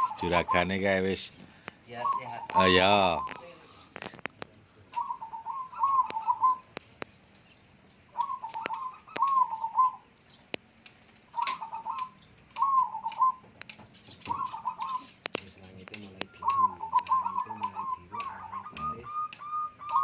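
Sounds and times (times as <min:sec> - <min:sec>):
dove cooing: 0:00.0 - 0:00.8, 0:01.9 - 0:04.2, 0:04.8 - 0:06.8, 0:08.1 - 0:10.1, 0:11.3 - 0:20.0
sharp clicks: 0:10.1 - 0:14.4, 0:15.2 - 0:20.0.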